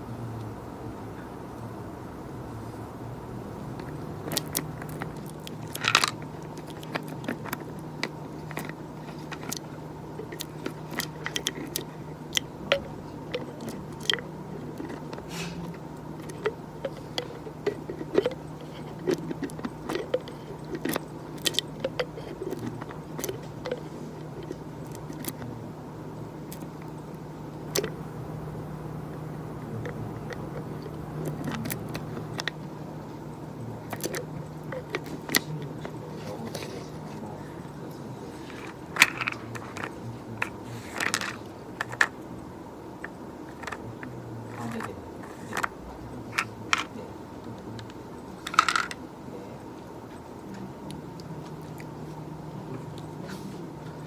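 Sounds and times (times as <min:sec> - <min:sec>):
low electrical hum: 0:00.0 - 0:54.0
small clicks and crunches: 0:03.8 - 0:25.6, 0:29.1 - 0:32.7, 0:33.8 - 0:42.2.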